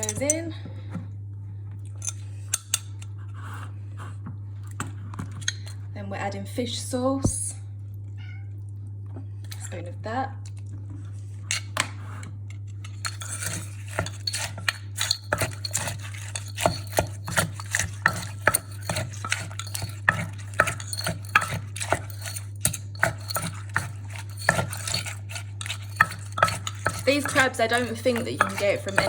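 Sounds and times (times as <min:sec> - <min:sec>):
pestle pounding in wooden mortar: 0:13.5 - 0:29.0.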